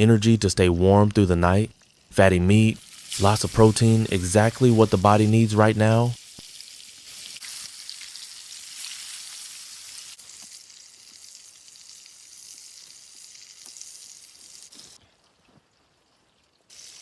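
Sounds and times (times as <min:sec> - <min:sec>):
meat sizzling over fire: 0:02.8 - 0:05.0, 0:05.9 - 0:15.0, 0:16.7 - 0:17.0.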